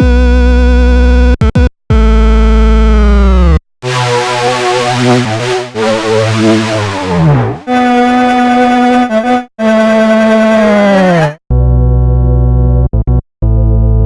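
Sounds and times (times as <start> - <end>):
bass-heavy synthesizer tone: 1.9 - 8.5
noisy warbling synthesizer patch: 3.8 - 8.2
steady synthesizer held tone: 3.8 - 8.3.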